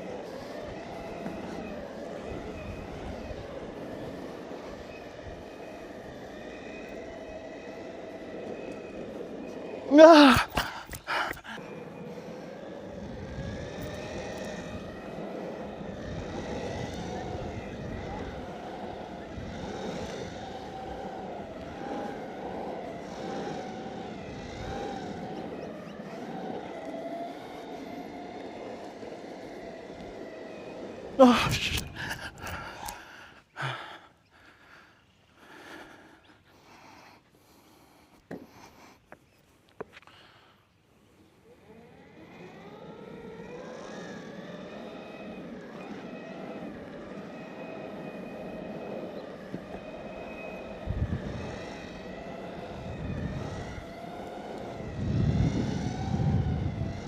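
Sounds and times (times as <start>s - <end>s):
electric motor whine: 0.0s - 33.8s, 36.5s - 57.0s
skateboard wheels rolling on asphalt: 0.0s - 57.0s
voiced huff: 9.9s - 11.7s, 31.2s - 39.2s.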